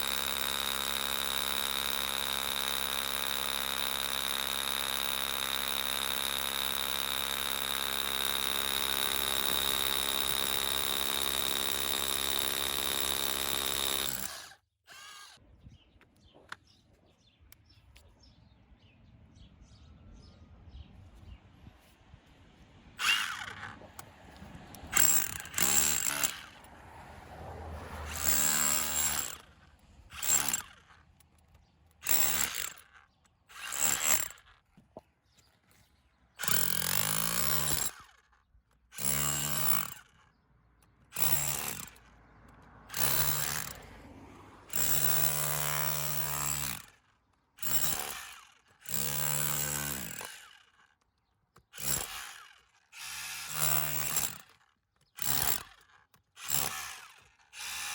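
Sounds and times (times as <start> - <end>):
rotary hammer bursts: 0.0 - 15.4, 23.0 - 26.7, 28.1 - 34.7, 36.4 - 42.2, 42.8 - 43.9, 44.7 - 57.9.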